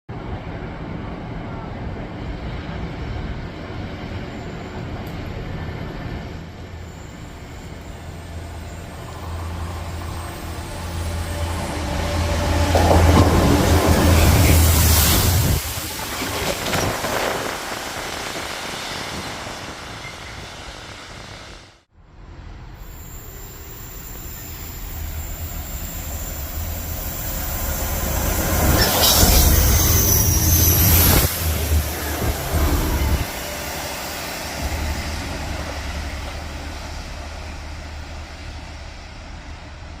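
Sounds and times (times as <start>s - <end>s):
diesel locomotive engine drone: 0.1s - 40.0s
high-pitched wheel squeal: 23.0s - 32.1s.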